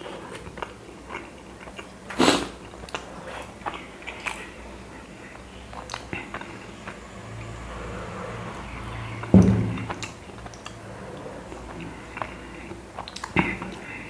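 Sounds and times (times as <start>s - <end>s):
man chewing food: 0.0s - 14.0s
wet mouth clicks: 5.7s - 6.5s
knock: 9.3s - 10.0s
sharp thump: 9.3s - 10.0s.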